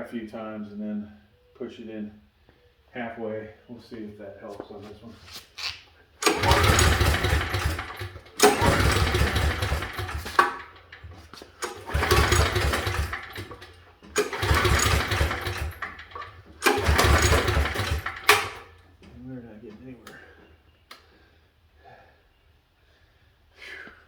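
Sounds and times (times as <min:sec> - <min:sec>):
generator engine cranking: 0:05.6 - 0:19.1.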